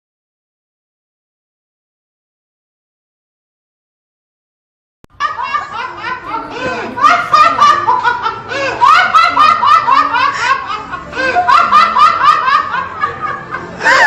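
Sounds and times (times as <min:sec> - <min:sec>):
high-pitched laughter: 0:05.2 - 0:14.0.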